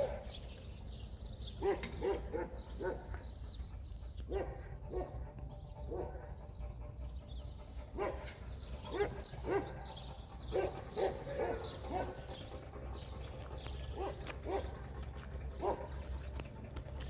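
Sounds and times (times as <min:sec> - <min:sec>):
dog barking: 0:01.6 - 0:03.2, 0:04.3 - 0:05.3, 0:05.9 - 0:06.4, 0:08.0 - 0:12.4, 0:14.0 - 0:14.8, 0:15.6 - 0:15.9.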